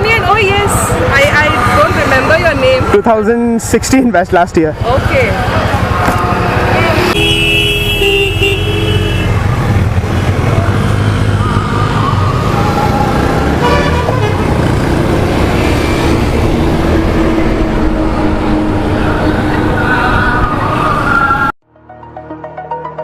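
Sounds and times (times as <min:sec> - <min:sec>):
motorcycle engine: 0:00.0 - 0:21.4
horn toot: 0:06.3 - 0:09.4, 0:13.5 - 0:14.8.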